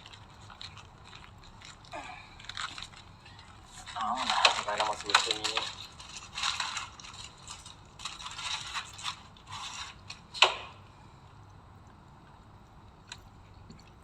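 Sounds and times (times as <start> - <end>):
packaging rustling and scraping: 0.0 - 10.4.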